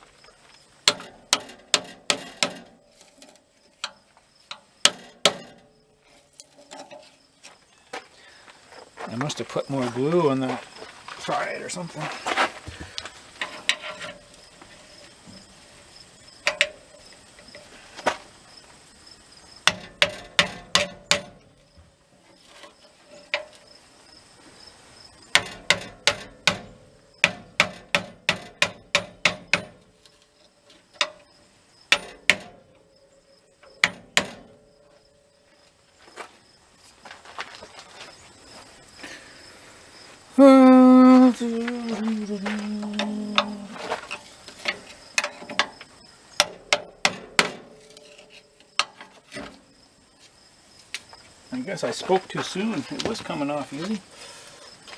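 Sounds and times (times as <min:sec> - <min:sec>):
faint insect trill: 0:02.7 - 0:54.9
hammer blows on metal door: 0:25.3 - 0:29.8.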